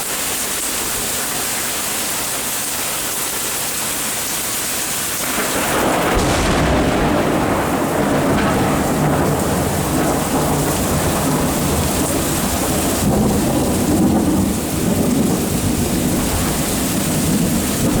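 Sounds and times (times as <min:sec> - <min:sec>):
steady rain falling: 0:00.0 - 0:18.0
thunder rumbling: 0:05.2 - 0:18.0.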